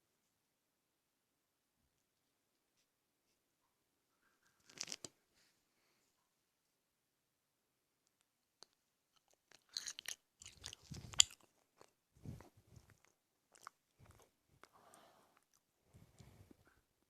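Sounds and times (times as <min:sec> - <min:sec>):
crunchy biting and chewing: 0:09.2 - 0:14.3.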